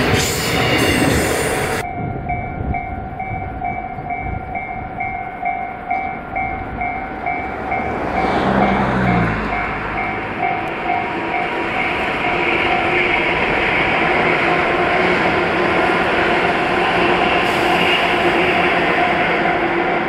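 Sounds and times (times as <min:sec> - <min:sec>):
warning bell ringing: 0:01.8 - 0:13.1
distant train motor hum: 0:03.6 - 0:20.0
freight wagons rumbling past: 0:05.3 - 0:19.8.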